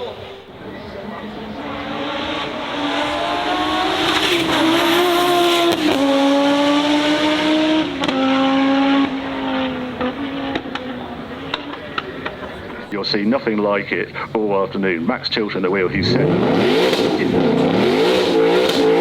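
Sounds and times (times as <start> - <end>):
race car engine accelerating: 0.0 - 19.0.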